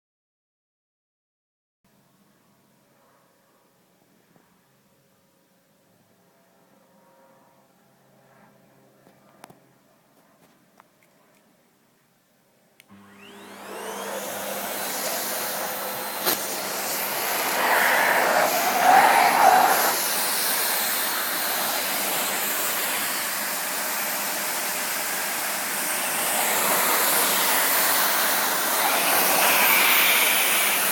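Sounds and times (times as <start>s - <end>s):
vacuum cleaner running: 12.9s - 30.9s.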